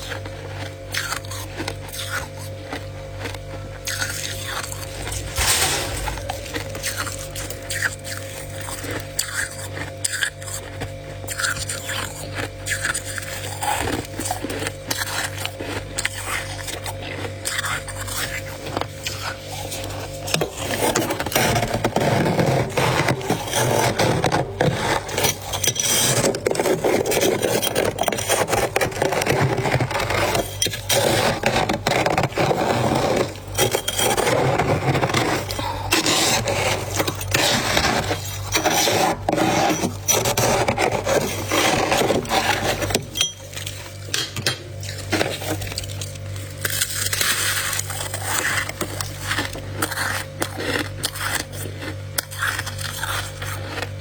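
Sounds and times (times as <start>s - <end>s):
frost crunching and crackling: 0.0s - 20.3s, 24.4s - 54.0s.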